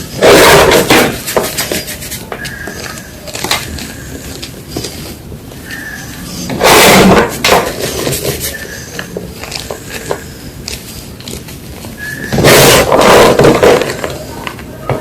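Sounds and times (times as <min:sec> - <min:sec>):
chalk block crunching: 0:00.2 - 0:14.3
chalk crumbling crackles: 0:07.5 - 0:14.7.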